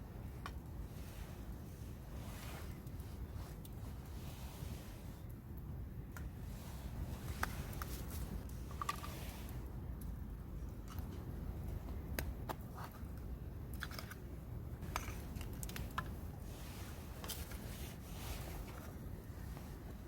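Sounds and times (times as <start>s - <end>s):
campfire crackling: 14.8s - 20.0s.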